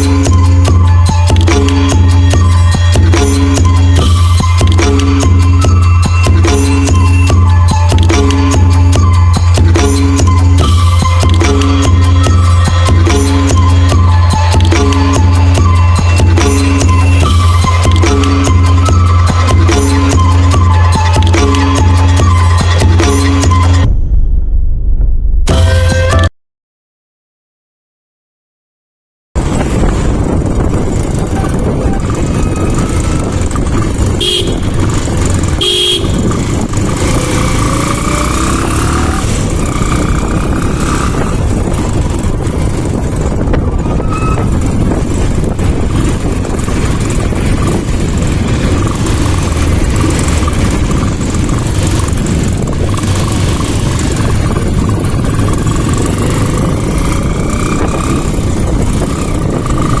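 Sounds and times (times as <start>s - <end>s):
motorcycle engine: 0.0s - 23.9s, 29.4s - 60.0s
wind noise: 29.4s - 60.0s
horn beeps: 31.3s - 34.8s, 35.6s - 36.3s, 43.8s - 44.8s.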